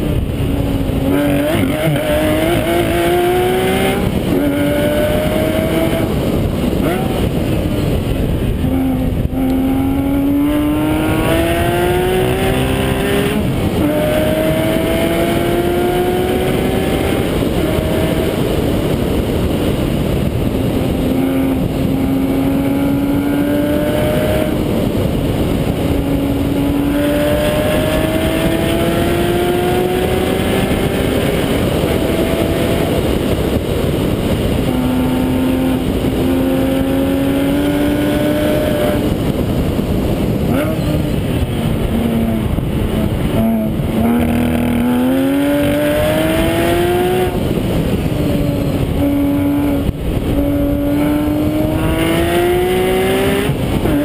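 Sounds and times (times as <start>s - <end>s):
sports car engine revving: 0.0s - 54.0s
wind and road noise: 0.0s - 54.0s.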